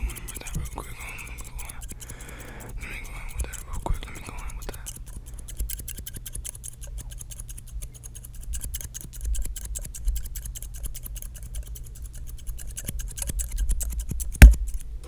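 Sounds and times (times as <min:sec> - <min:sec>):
scissors snipping: 0:04.8 - 0:14.9.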